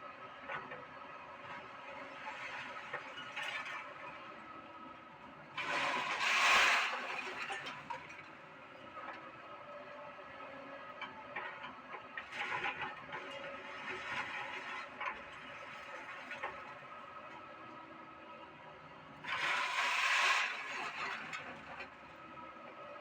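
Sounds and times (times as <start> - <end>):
excavator running: 6.8 - 23.0.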